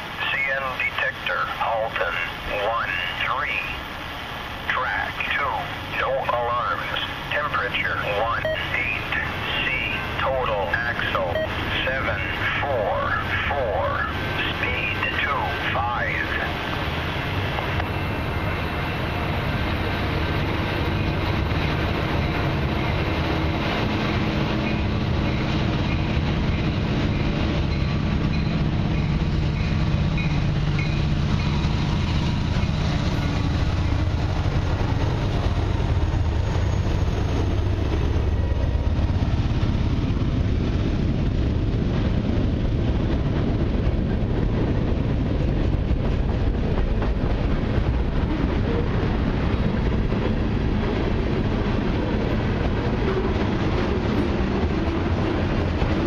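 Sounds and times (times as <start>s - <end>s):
diesel locomotive engine drone: 0.0s - 56.0s
freight cars rumbling and clattering: 0.0s - 56.0s.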